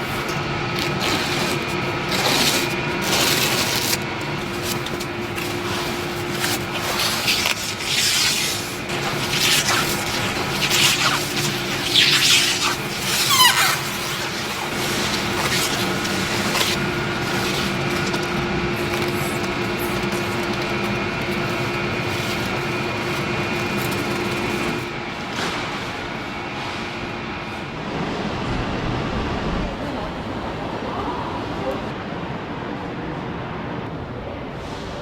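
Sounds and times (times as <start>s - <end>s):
hissing and rubbing noises: 0.0s - 25.9s
factory machinery humming: 0.0s - 35.0s.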